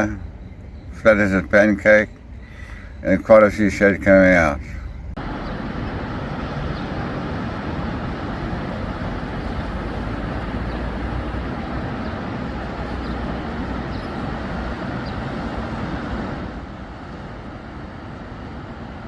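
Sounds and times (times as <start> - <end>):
sea rumbling: 0.0 - 19.0
wind rushing: 4.6 - 18.7.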